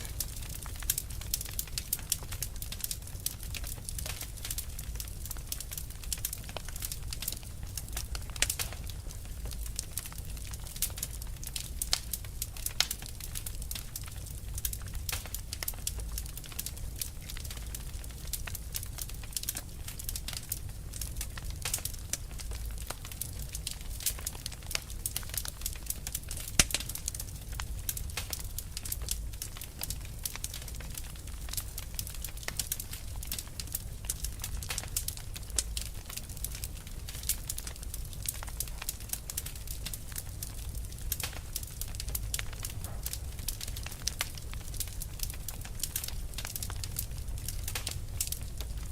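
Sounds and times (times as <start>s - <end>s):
fire crackling and popping: 0.0s - 48.9s.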